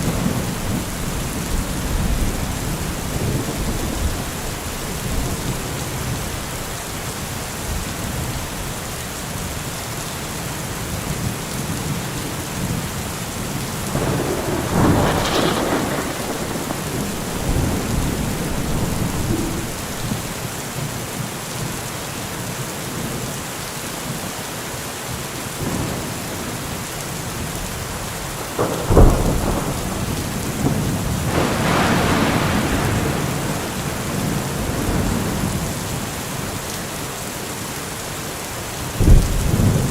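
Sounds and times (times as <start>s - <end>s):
loud thunderclap: 0.0s - 6.3s, 13.9s - 20.4s, 28.4s - 35.8s, 39.0s - 39.9s
thunder rolling: 0.0s - 6.3s, 13.9s - 20.4s, 28.4s - 35.8s, 39.0s - 39.9s
steady rain: 0.0s - 39.9s.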